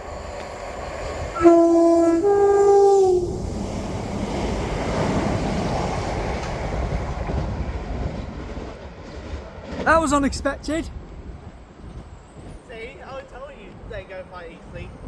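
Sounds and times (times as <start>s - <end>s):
train rumbling: 0.0s - 15.0s
train two-tone horn: 1.4s - 3.4s.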